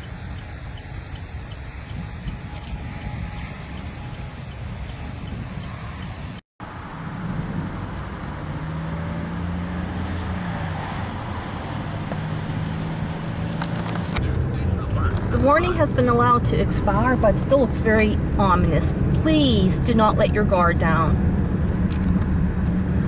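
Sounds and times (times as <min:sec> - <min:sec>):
car engine idling: 0:00.0 - 0:06.4
wind hiss: 0:00.0 - 0:07.8.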